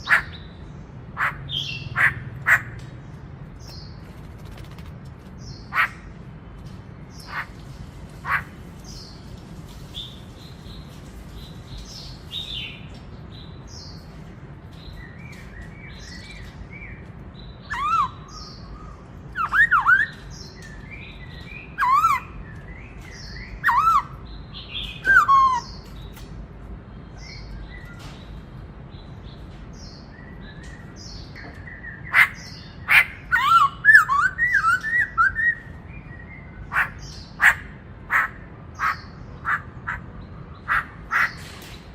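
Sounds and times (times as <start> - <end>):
bird whistled song: 17.6 - 26.0, 32.9 - 36.6.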